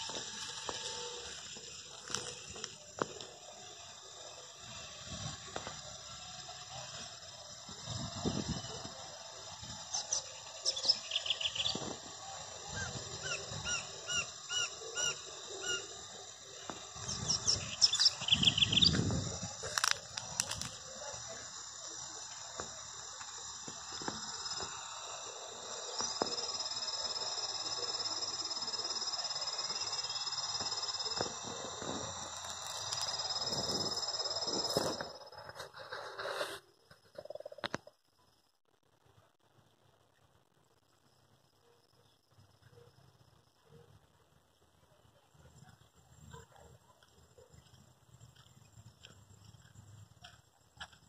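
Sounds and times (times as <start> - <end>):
steady high drone: 0.0 - 35.8
birds chirping: 8.2 - 11.9, 12.6 - 19.6.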